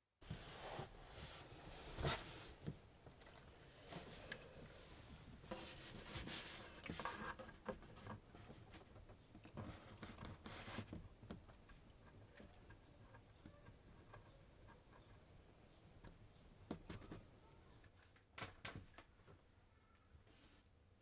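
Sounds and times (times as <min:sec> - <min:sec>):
faint rubbing and scraping: 0:00.2 - 0:16.2.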